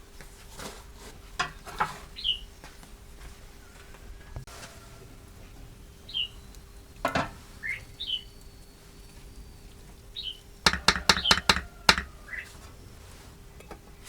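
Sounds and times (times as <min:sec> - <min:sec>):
small bird chirping: 0:02.1 - 0:02.5, 0:05.7 - 0:12.9
sharp knocks: 0:10.7 - 0:12.2.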